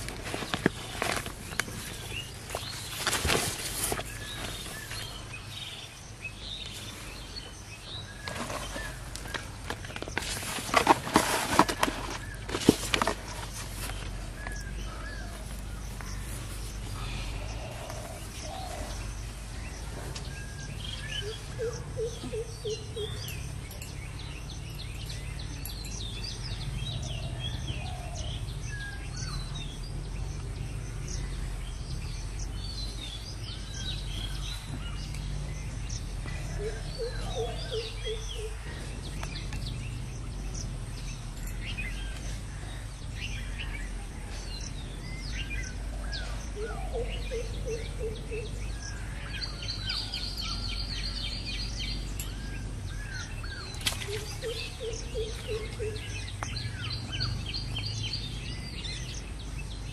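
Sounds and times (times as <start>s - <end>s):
birds chirping and whistling: 0.0s - 59.9s.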